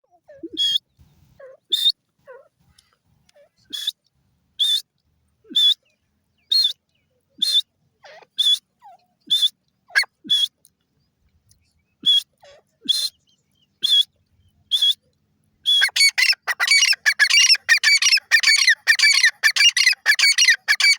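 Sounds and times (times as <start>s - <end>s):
bird shrill high call: 15.7s - 20.9s.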